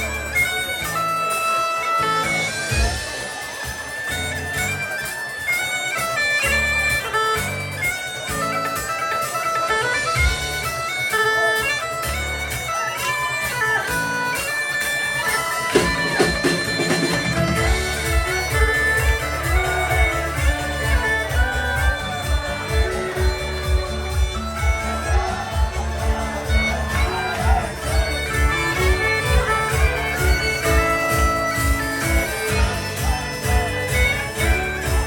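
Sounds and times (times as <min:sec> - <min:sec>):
reedy melody notes: 0:00.0 - 0:35.0
rhythmic beat: 0:00.0 - 0:35.0
strummed guitar chords: 0:13.4 - 0:35.0.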